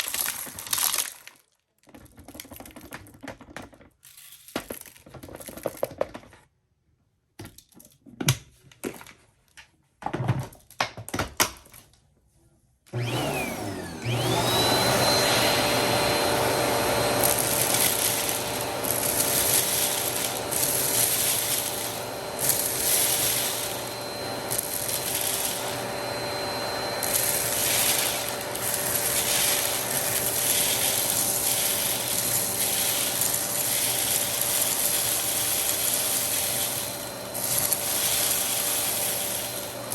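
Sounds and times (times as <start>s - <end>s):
vacuum cleaner running: 12.9s - 39.9s.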